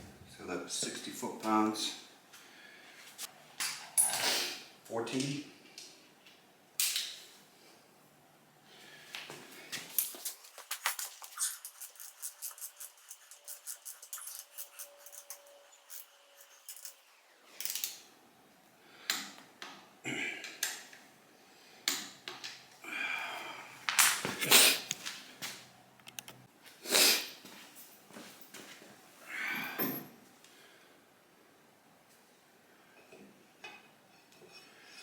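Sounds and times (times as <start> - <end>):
tools and metal parts clinking: 9.9 - 10.6, 13.8 - 17.9.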